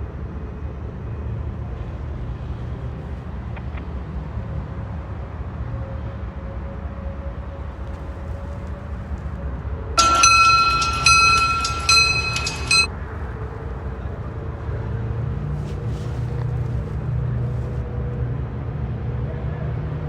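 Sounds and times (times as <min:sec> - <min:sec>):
diesel locomotive rumbling: 0:04.6 - 0:20.0.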